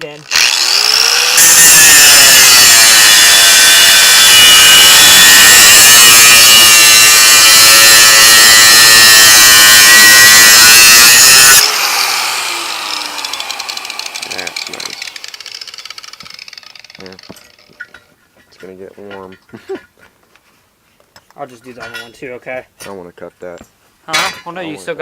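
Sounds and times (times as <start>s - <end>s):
angle grinder cutting metal: 0.0s - 17.7s.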